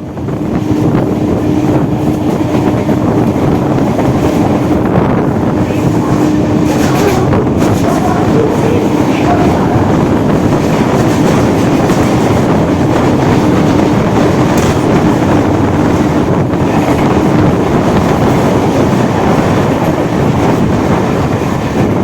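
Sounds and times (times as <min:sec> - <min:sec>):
train wheels rumbling on rail: 0:00.0 - 0:22.0
humming tone: 0:04.5 - 0:15.7
faint rail clicks: 0:05.6 - 0:17.3.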